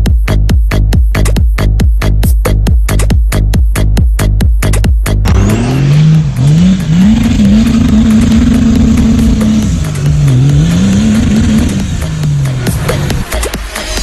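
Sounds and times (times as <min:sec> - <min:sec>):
electronic dance music: 0:00.0 - 0:14.0
diesel engine revving: 0:05.1 - 0:14.0.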